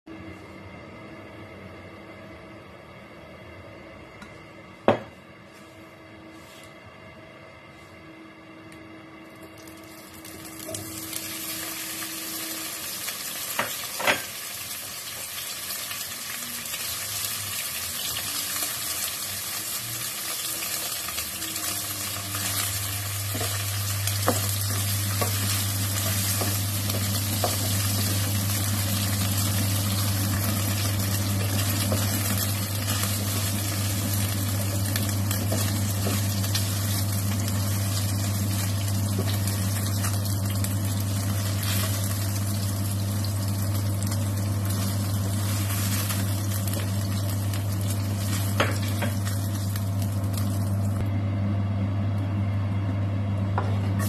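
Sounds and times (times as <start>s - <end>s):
low steady hum: 0.1s - 54.0s
meat sizzling in hot oil: 9.6s - 51.0s.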